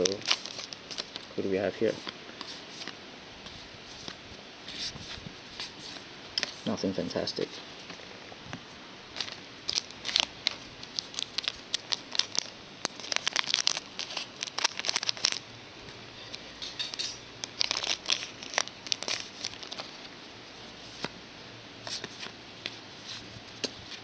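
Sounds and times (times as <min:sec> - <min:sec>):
card pack wrapper crinkling and tearing: 0:00.0 - 0:02.9, 0:09.2 - 0:15.4, 0:17.4 - 0:20.1
cards being handled: 0:00.0 - 0:06.8, 0:21.8 - 0:24.0.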